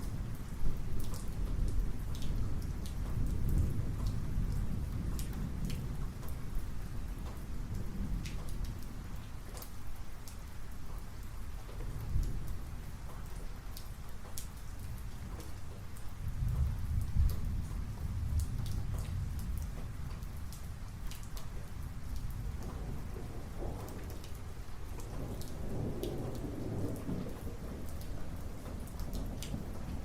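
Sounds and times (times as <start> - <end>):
raindrops ticking close by: 0.0 - 30.0
steady rain: 0.0 - 30.0
rolling thunder: 16.2 - 20.6, 21.8 - 30.0.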